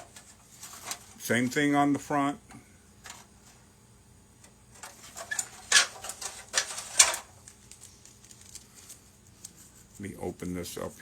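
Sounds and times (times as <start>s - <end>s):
plastic parts clicking and rustling: 4.7s - 9.6s.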